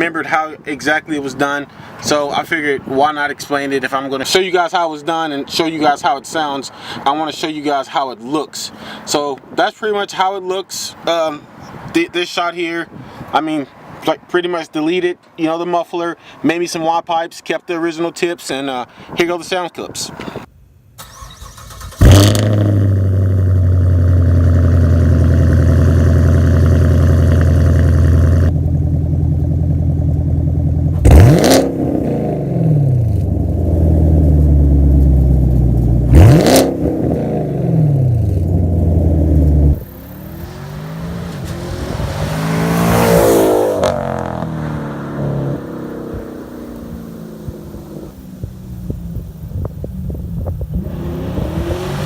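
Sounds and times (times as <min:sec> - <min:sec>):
engine revving: 0:21.1 - 0:28.6, 0:30.9 - 0:48.5, 0:50.1 - 0:52.0
quieter engine sound: 0:22.5 - 0:52.0
loud car engine idling: 0:23.9 - 0:31.3.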